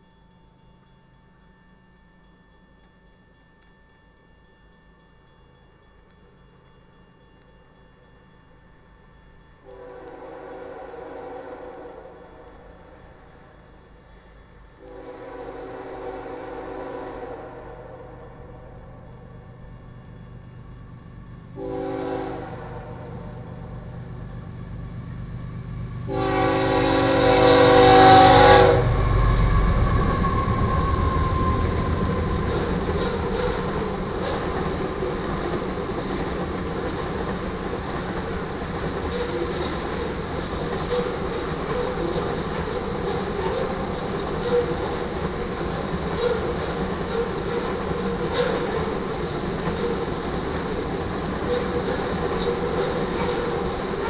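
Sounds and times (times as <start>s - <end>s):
locomotive air horn: 9.7s - 12.2s, 14.8s - 18.4s, 21.6s - 23.4s, 26.1s - 32.2s
diesel locomotive rumble: 13.4s - 54.0s
tank cars clickety-clack: 31.8s - 54.0s.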